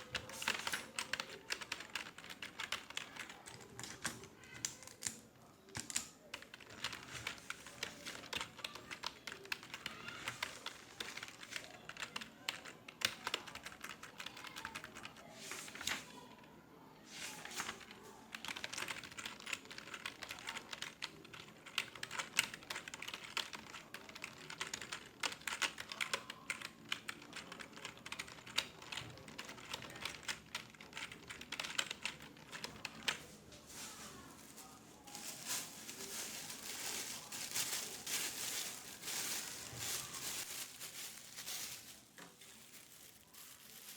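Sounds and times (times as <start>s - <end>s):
typing on computer keyboard: 0.0s - 15.2s, 18.3s - 33.2s.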